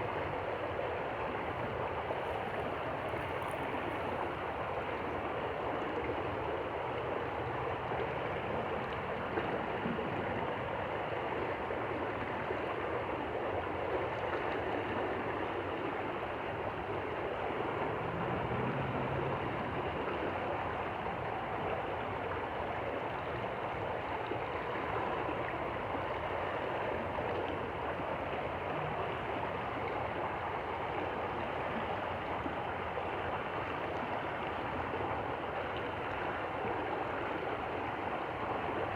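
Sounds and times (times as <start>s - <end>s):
stream rushing and gurgling: 16.5s - 22.6s.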